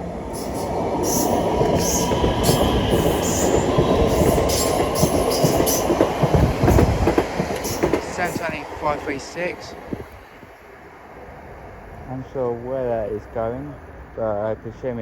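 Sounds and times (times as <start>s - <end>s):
train wheels rumbling on rail: 0.0s - 15.0s
wheels knocking on track: 0.5s - 9.3s.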